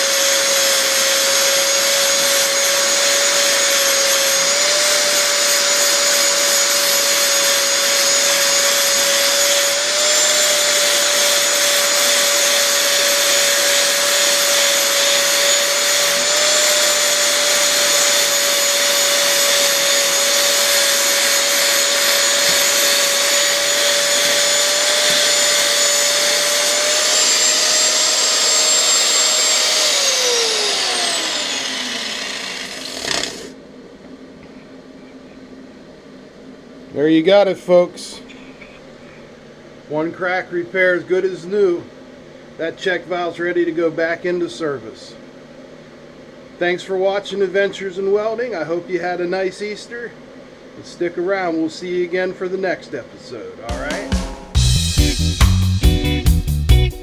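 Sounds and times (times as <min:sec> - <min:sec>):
angle grinder whining: 0:00.0 - 0:33.6
grinder winding down: 0:00.0 - 0:33.6.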